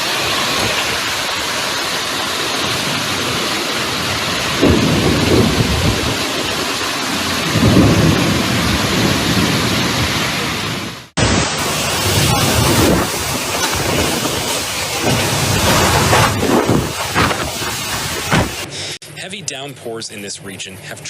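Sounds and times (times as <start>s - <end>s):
heavy rain pouring: 0.0s - 18.7s
low thunder rolls: 2.5s - 18.7s.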